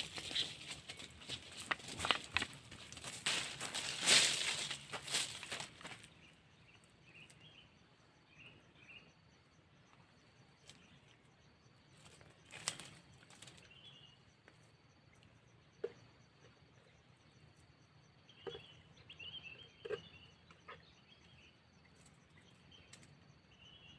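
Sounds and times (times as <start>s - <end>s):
faint bird chirps: 5.4s - 23.9s.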